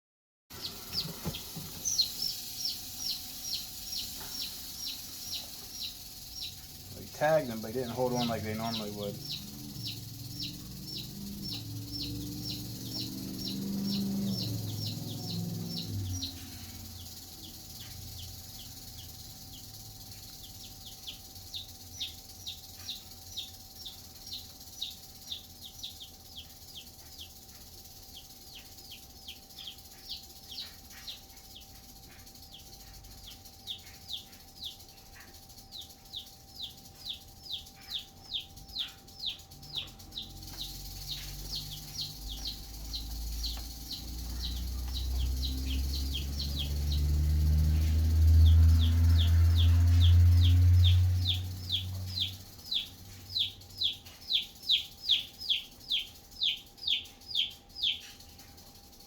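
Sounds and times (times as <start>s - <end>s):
chicks peeping: 0.5s - 59.0s.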